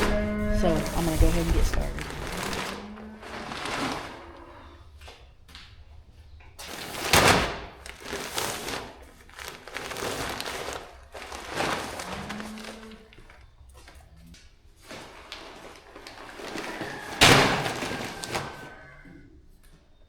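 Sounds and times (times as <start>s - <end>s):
sacks sliding and thudding: 0.0s - 4.8s, 6.6s - 13.4s, 14.8s - 18.9s.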